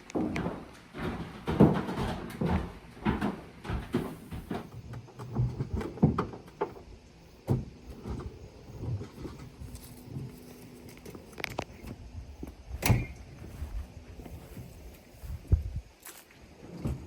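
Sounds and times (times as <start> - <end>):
knocks and thuds of objects handled: 0.0 - 6.8.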